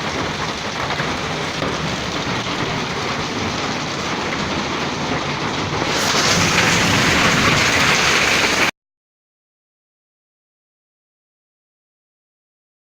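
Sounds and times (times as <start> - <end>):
hail and rain pelting: 0.0 - 8.7.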